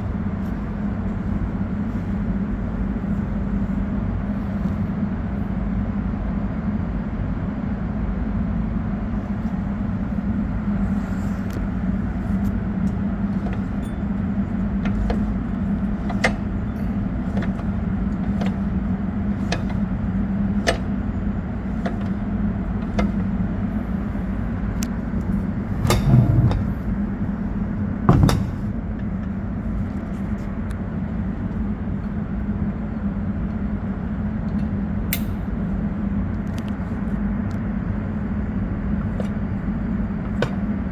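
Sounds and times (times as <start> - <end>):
low mechanical hum: 0.0 - 40.9
loud knocks: 24.9 - 29.5.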